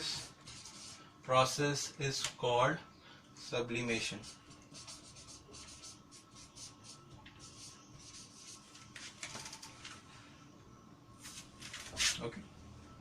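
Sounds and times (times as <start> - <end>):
pen scratching on paper: 4.2 - 8.6.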